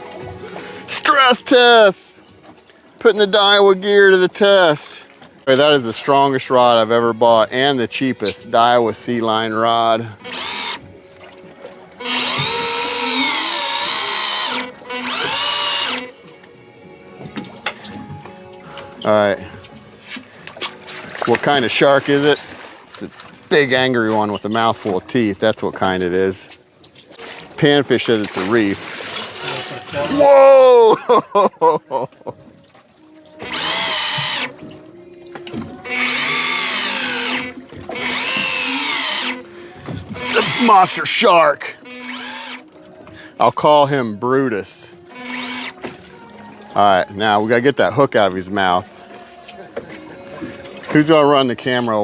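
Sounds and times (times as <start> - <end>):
fishing reel motor whining: 10.2 - 16.3, 33.4 - 34.8, 35.8 - 39.6, 40.2 - 42.8, 45.1 - 46.0.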